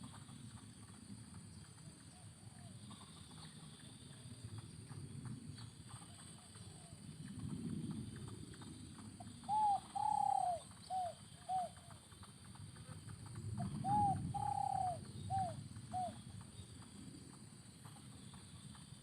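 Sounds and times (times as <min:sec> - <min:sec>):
dove cooing: 0:09.2 - 0:12.0, 0:13.5 - 0:16.2.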